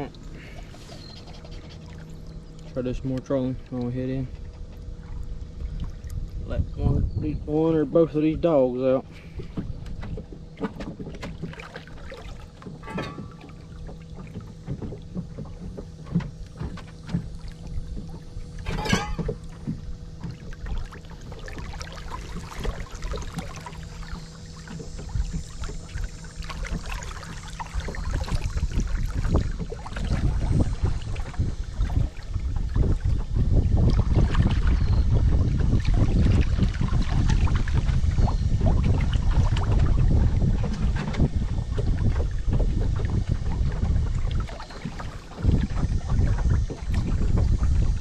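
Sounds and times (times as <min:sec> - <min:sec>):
boat motor hum: 0:00.0 - 0:48.0
water splashing against hull: 0:00.0 - 0:48.0
wind rumble on microphone: 0:00.0 - 0:48.0
knocks on hull: 0:09.3 - 0:48.0.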